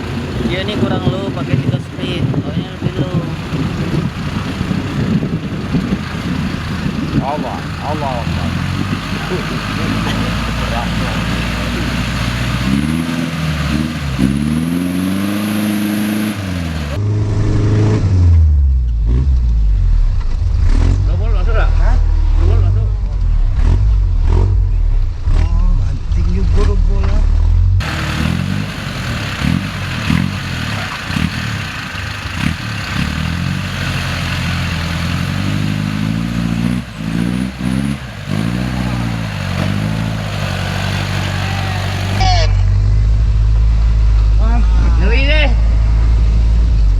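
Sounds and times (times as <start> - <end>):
off-road vehicle engine revving: 0.0 - 46.9.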